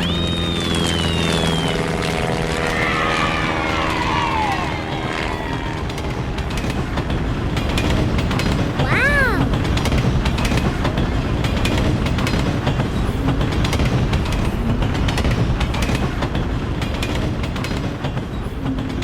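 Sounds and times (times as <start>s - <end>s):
train rumbling on track: 0.0s - 19.0s
wheels clicking over rail joints: 4.1s - 19.0s.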